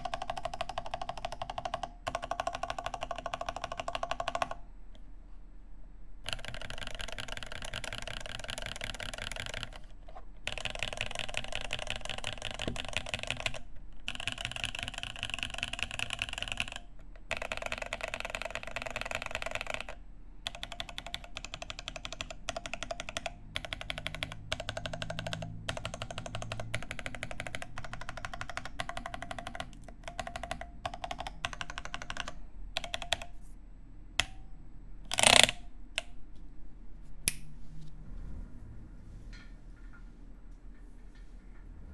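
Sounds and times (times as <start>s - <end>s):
mechanical keyboard typing: 0.0s - 4.6s, 6.3s - 33.4s, 35.1s - 36.1s.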